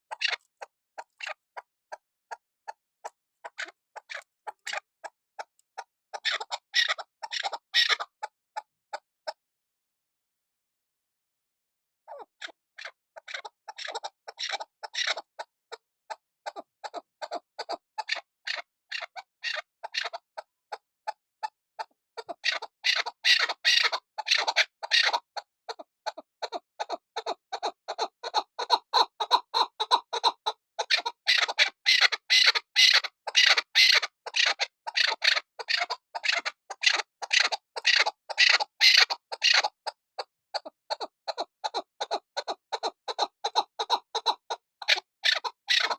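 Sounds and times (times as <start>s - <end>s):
partridge calling sharp notes: 31.0s - 39.8s.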